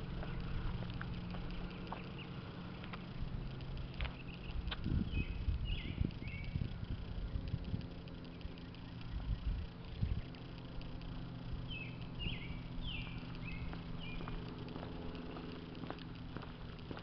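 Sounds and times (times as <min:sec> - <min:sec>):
footsteps clicks: 0:00.0 - 0:05.0, 0:12.1 - 0:17.0
steady low hum: 0:00.0 - 0:17.0
bird chirping: 0:01.5 - 0:02.8, 0:03.9 - 0:15.8.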